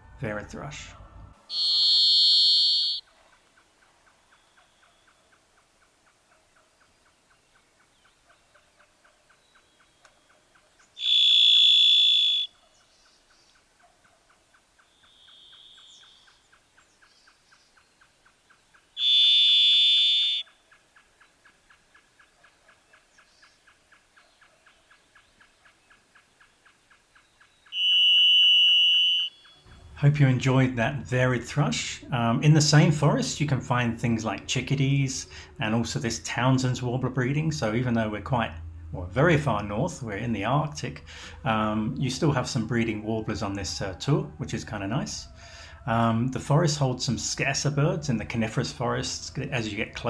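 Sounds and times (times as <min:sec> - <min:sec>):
thrush whistled notes: 0:01.5 - 0:03.0, 0:11.0 - 0:12.5, 0:19.0 - 0:20.5, 0:27.7 - 0:29.7.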